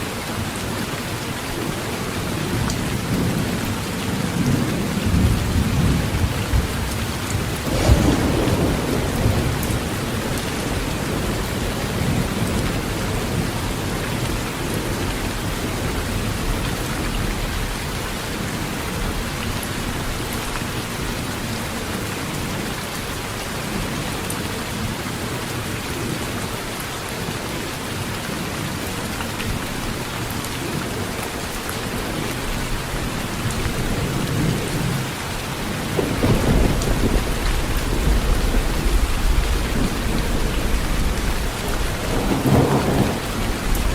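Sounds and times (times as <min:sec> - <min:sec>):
heavy rain on a tin roof: 0:00.0 - 0:43.9
thunder rumbling: 0:03.0 - 0:18.0, 0:35.7 - 0:43.9.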